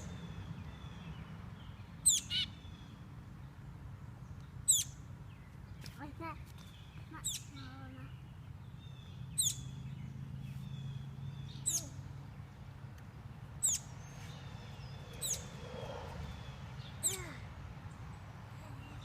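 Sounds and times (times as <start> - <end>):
baby bird chirping: 2.0 - 2.6, 4.6 - 5.0, 6.6 - 8.2, 9.0 - 9.8, 11.4 - 12.1, 13.6 - 15.6, 16.3 - 17.4.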